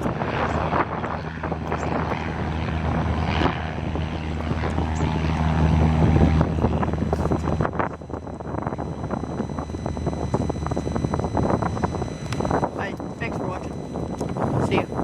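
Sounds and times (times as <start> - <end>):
propeller airplane engine droning: 0.0 - 15.0
wind buffeting microphone: 0.0 - 15.0.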